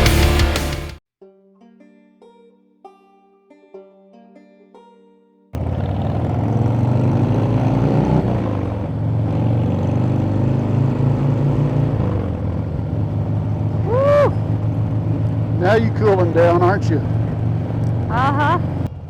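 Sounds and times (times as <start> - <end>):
motorcycle engine revving: 5.6 - 19.0.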